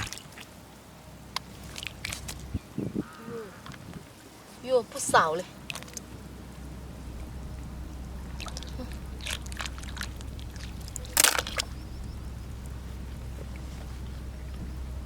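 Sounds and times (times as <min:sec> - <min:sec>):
steady low rumble: 0:00.0 - 0:15.0
wet sand squelching: 0:01.4 - 0:02.6
sharp clatter: 0:08.4 - 0:11.9
shells crunching: 0:08.5 - 0:11.8.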